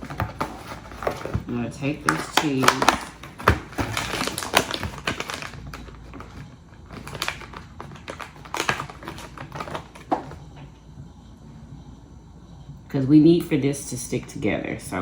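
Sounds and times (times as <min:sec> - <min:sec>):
packaging rustling: 0:00.0 - 0:10.5.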